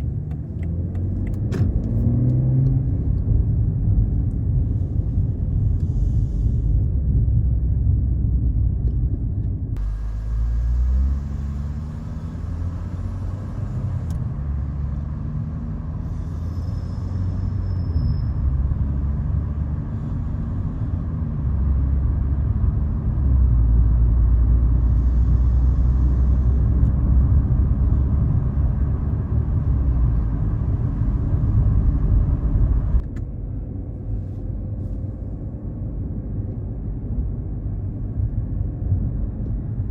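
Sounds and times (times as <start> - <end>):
car exhaust droning: 9.8 - 33.0.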